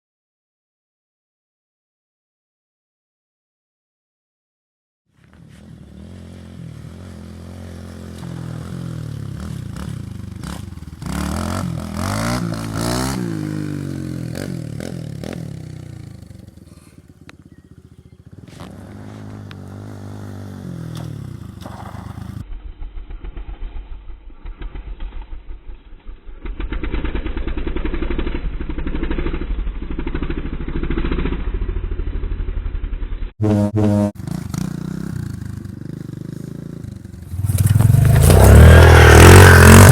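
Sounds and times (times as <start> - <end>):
dirt bike engines revving: 5.2 - 22.4, 33.4 - 39.9
engine chugging steadily: 15.6 - 18.6.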